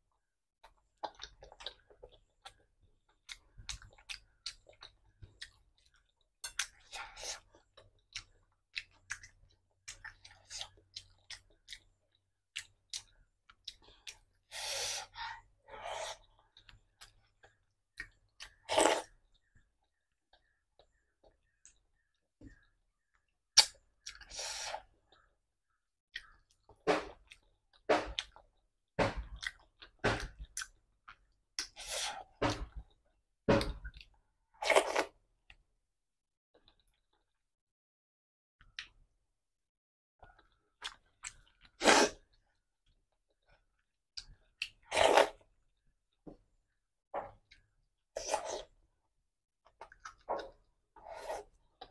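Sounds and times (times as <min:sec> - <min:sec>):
person chewing and lip smacking: 0:00.6 - 0:14.5, 0:16.4 - 0:25.3, 0:26.1 - 0:28.5, 0:29.2 - 0:32.9, 0:40.2 - 0:42.4.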